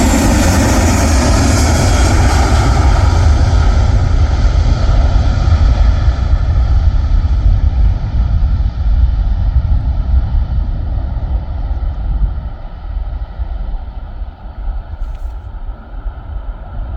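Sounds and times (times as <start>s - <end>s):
aircraft engine rumble: 0.0s - 16.9s.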